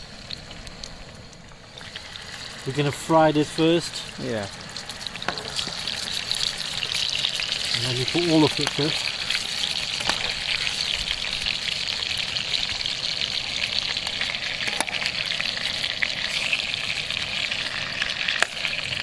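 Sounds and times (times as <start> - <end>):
chicken frying in hot oil: 0.0 - 19.0.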